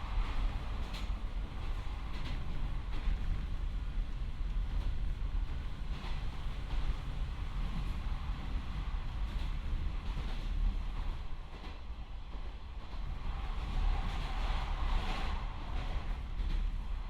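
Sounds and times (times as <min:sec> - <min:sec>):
diesel railcar rumble: 0:00.0 - 0:11.8.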